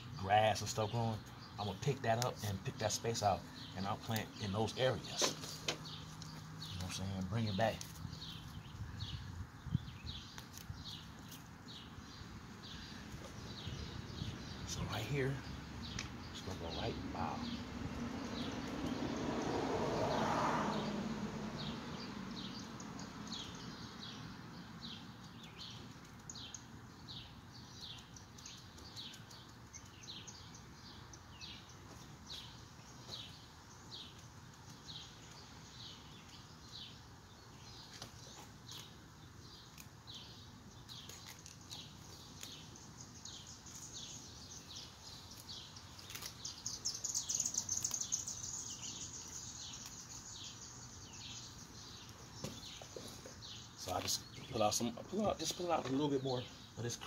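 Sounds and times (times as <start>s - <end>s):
small bird chirping: 0.0s - 19.2s, 21.6s - 57.0s.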